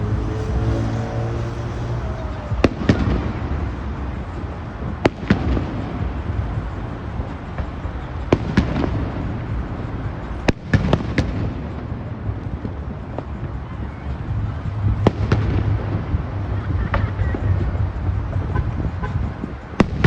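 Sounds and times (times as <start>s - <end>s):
steady low rumble: 0.0s - 20.0s
fireworks bangs: 2.0s - 20.0s.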